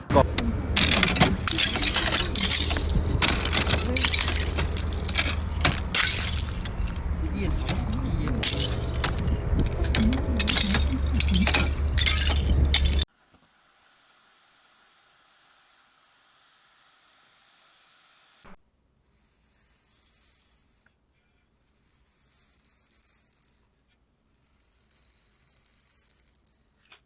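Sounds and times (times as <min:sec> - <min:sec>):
faint steady hiss: 0:13.1 - 0:26.9.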